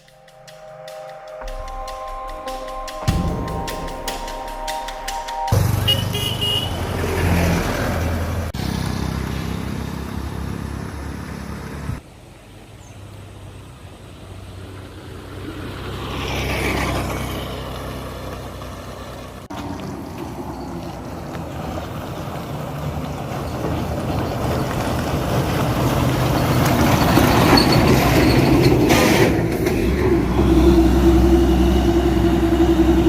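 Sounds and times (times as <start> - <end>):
vehicles passing: 0.0 - 33.0
car horn toot: 0.6 - 7.8.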